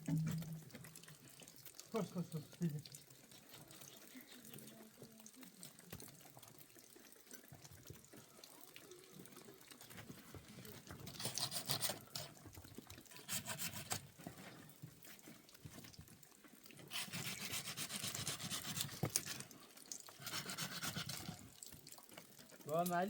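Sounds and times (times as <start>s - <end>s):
rough rubbing strokes: 16.9s - 19.0s, 20.2s - 21.4s.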